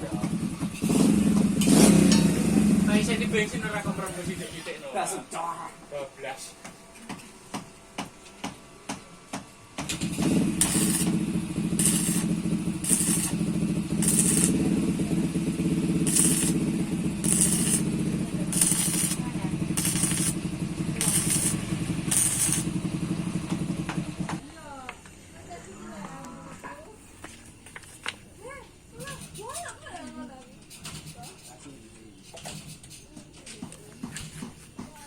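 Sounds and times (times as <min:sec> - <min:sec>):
arc welding crackle: 0:09.8 - 0:24.2
welder hum: 0:09.9 - 0:24.4.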